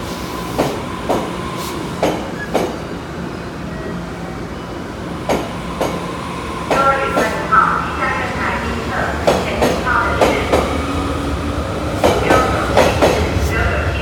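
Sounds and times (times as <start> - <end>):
electric train running hum: 0.0 - 14.0
train wheels clicking over rail joint: 0.5 - 2.8.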